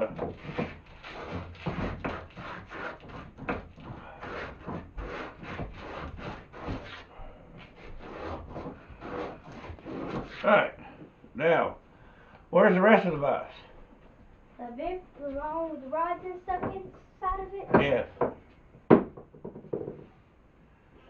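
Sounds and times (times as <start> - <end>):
sandpaper rubbing: 0.3 - 10.5.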